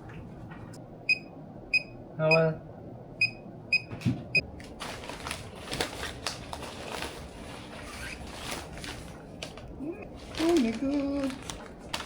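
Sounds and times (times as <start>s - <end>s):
appliance button beeps: 3.2s - 4.0s.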